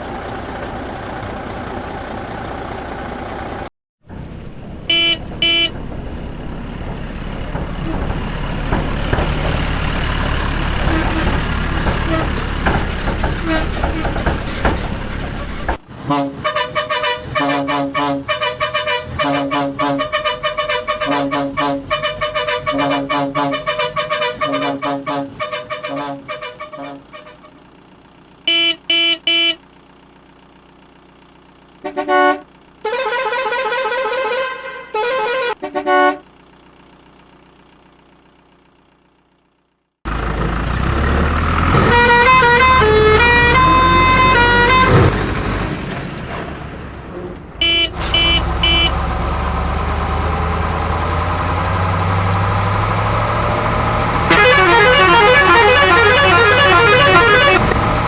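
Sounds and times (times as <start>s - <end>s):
vehicle horns honking: 4.1s - 27.6s, 28.5s - 29.6s, 31.8s - 36.3s, 41.6s - 45.1s, 47.0s - 49.6s, 54.3s - 57.8s
tune of horn-like notes: 4.9s - 5.7s, 28.5s - 29.6s, 47.6s - 49.0s, 54.3s - 57.6s.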